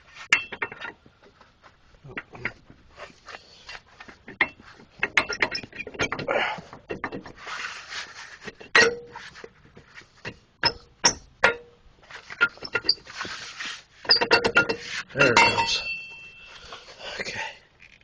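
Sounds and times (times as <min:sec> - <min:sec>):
metal scraping: 0:00.0 - 0:17.2
metal tools clinking: 0:00.3 - 0:01.0, 0:14.0 - 0:17.2
sharp ringing metal strikes: 0:15.3 - 0:16.6.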